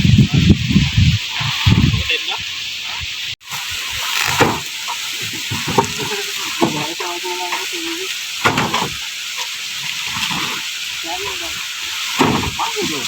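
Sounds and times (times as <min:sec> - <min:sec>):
corn sheller threshing: 0:03.5 - 0:07.8, 0:08.4 - 0:09.1.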